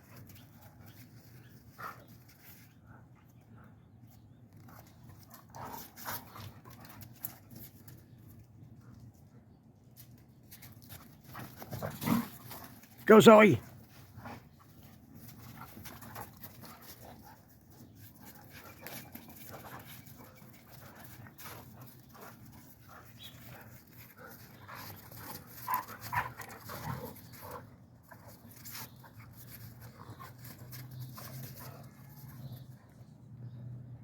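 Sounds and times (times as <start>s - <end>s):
dogs panting: 0.0s - 9.5s, 13.6s - 33.0s
dogs scrambling in snow: 10.4s - 32.6s.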